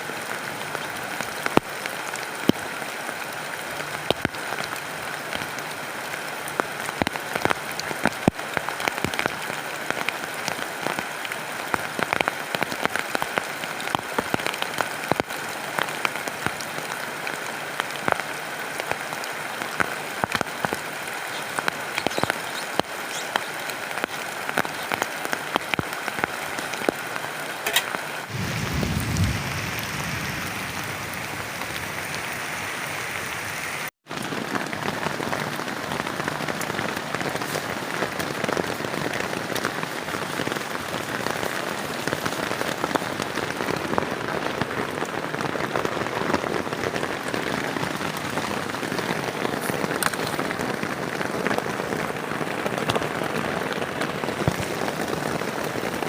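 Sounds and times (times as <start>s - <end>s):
heavy rain: 0.0s - 56.0s
low rumble: 28.3s - 32.4s.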